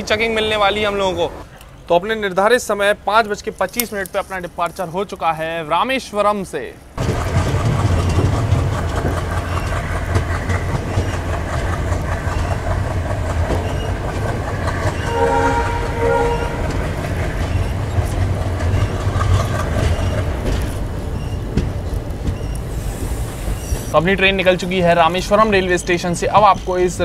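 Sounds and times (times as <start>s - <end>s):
train low rumble: 0.0s - 27.0s
wheels clattering on rails: 6.9s - 27.0s
locomotive horn blast: 15.0s - 17.0s.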